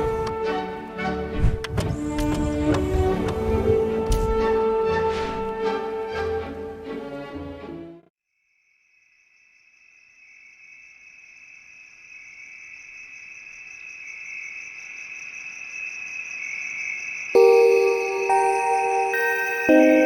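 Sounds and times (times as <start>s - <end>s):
music: 0.0s - 8.1s, 17.4s - 20.0s
crickets trilling: 8.6s - 17.7s.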